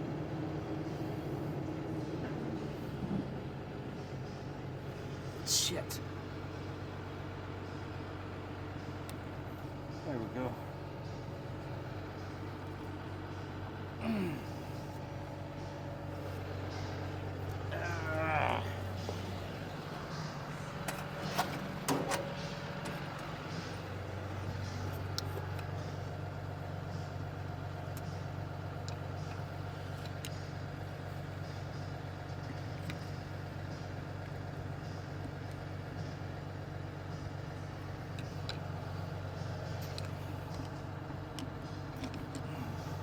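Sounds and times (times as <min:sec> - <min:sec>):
truck engine idling: 0:00.0 - 0:43.0.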